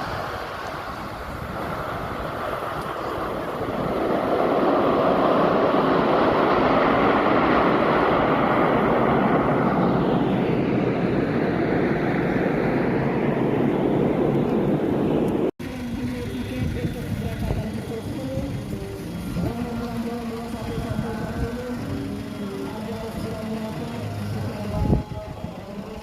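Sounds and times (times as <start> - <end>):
military aircraft flying past: 0.0 - 18.0.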